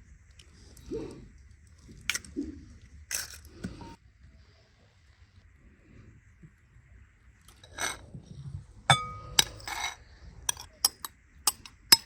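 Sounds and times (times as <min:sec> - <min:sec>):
glass dishes clinking: 0:08.9 - 0:12.0.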